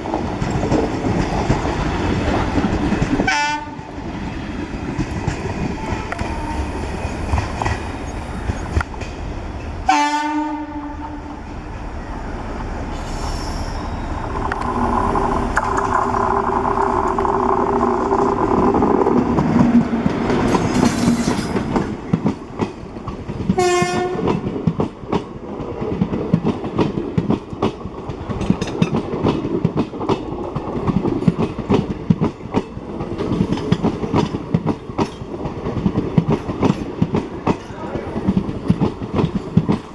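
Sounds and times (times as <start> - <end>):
train rolling noise: 0.0 - 39.9
train horn blasts: 3.3 - 3.8, 5.8 - 7.8, 9.8 - 15.7, 23.6 - 24.3.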